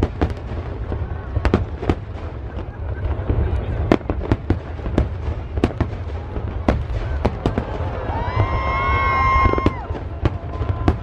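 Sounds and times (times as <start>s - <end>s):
firework bangs and crackles: 0.0s - 11.0s
high firework whistle: 7.0s - 11.0s.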